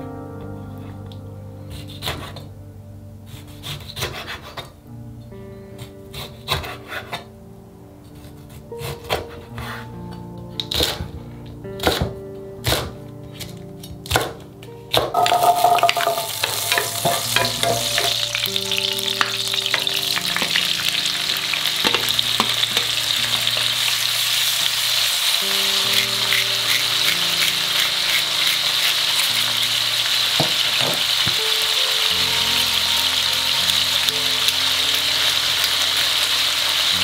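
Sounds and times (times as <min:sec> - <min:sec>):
spatula knocking: 0:15.2 - 0:18.3
food sizzling in hot oil: 0:15.2 - 0:37.0.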